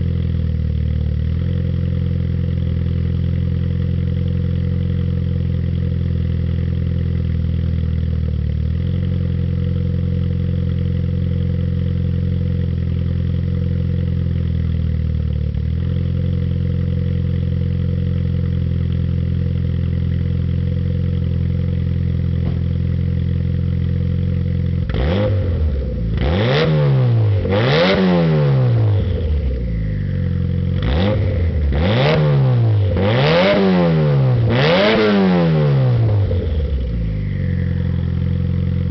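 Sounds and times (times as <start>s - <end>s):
car engine idling: 0.0s - 38.9s
engine revving in blips: 24.9s - 29.2s, 30.8s - 36.5s.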